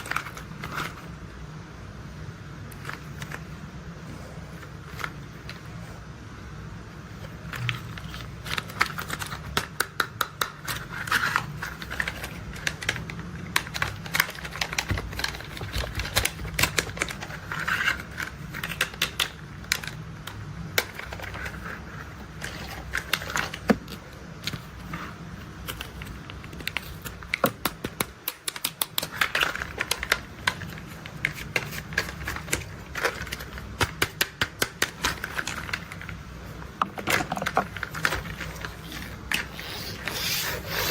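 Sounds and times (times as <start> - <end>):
plastic toy parts clicking: 7.5 - 24.6, 25.6 - 36.2.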